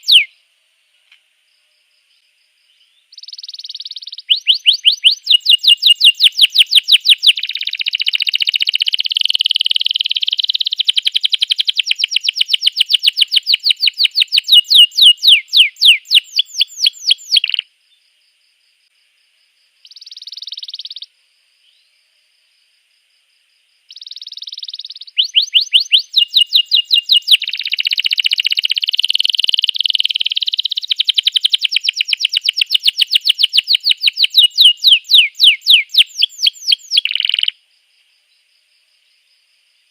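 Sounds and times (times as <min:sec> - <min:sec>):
canary singing trills: 0:00.0 - 0:00.4, 0:02.7 - 0:17.7, 0:19.8 - 0:21.1, 0:23.9 - 0:37.6.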